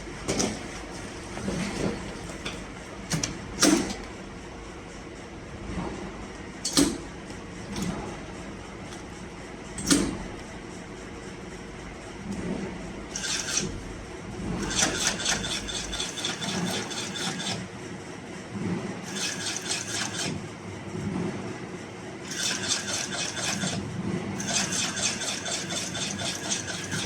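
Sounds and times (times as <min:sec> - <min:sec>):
stitching machine needle strokes: 0:13.1 - 0:13.7, 0:14.6 - 0:17.6, 0:19.1 - 0:20.4, 0:22.3 - 0:23.8, 0:24.4 - 0:27.0.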